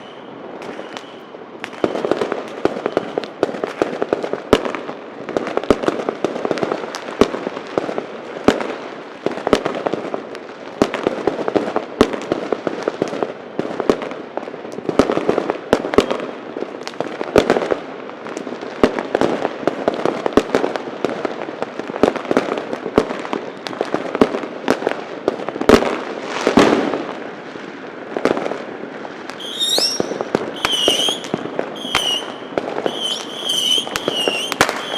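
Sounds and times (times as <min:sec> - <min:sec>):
fireworks bangs: 0:00.0 - 0:10.2, 0:18.8 - 0:34.9
firecrackers crackling: 0:00.0 - 0:34.9.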